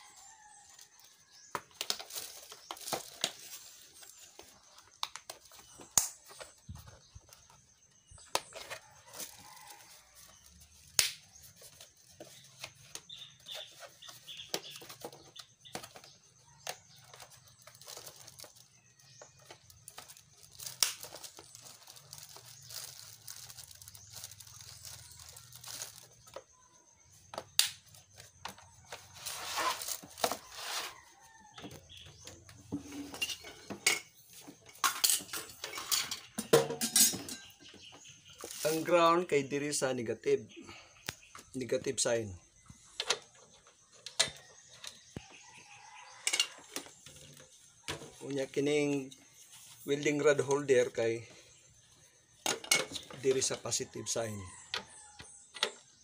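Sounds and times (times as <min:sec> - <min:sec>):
plastic crinkling: 0:17.0 - 0:26.4.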